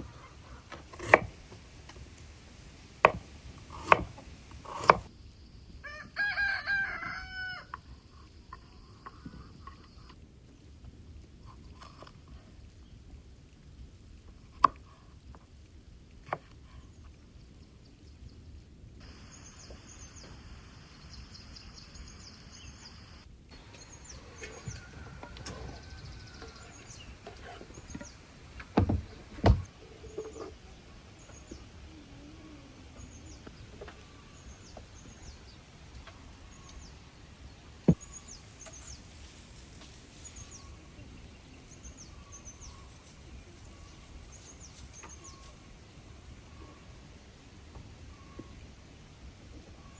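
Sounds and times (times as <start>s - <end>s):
sharp knocks: 3.1s - 5.1s
small birds chirping: 16.2s - 46.9s.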